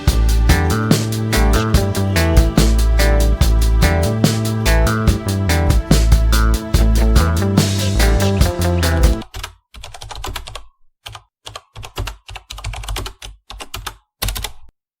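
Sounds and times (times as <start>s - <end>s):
background music: 0.0s - 9.2s.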